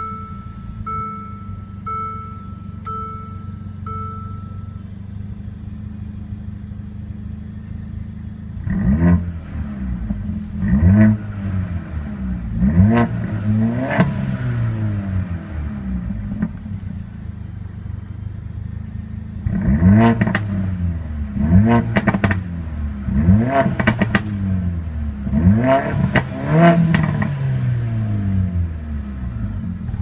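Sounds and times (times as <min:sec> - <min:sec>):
car engine idling and revving: 0:00.0 - 0:30.0
exhaust crackles: 0:18.8 - 0:30.0.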